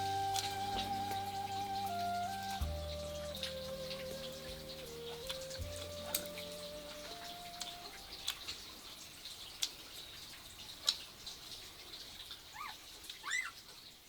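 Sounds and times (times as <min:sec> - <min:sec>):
bird chirps: 0:00.0 - 0:08.5.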